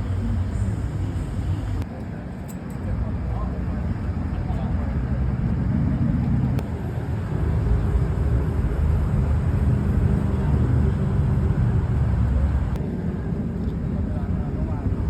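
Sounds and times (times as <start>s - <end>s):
car engine rumbling: 0.0s - 1.9s, 4.5s - 12.8s.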